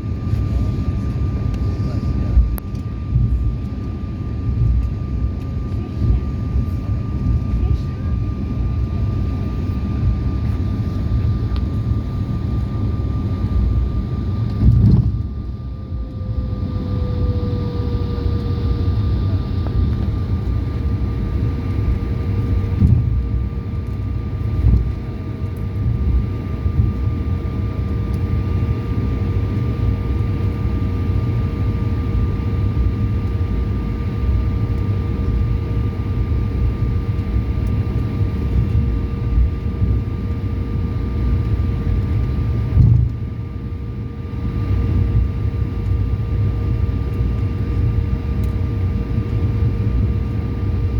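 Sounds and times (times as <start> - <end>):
airliner engines in cabin: 0.0 - 50.9
short thump: 42.8 - 43.0.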